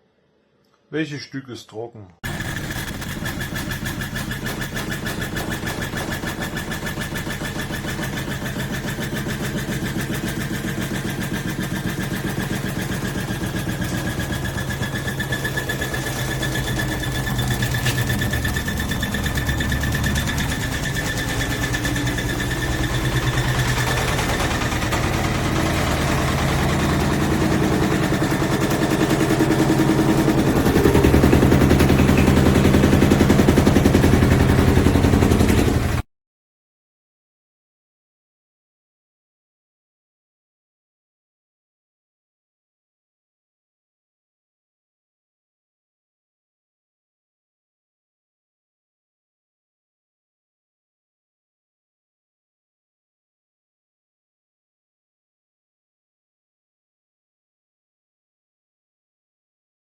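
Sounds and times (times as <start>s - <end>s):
washing machine spinning: 2.2s - 36.0s.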